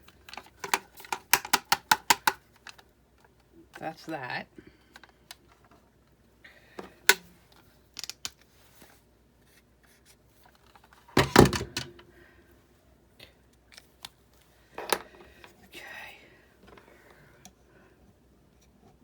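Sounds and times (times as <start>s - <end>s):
clatter of parts knocking: 11.2s - 12.0s.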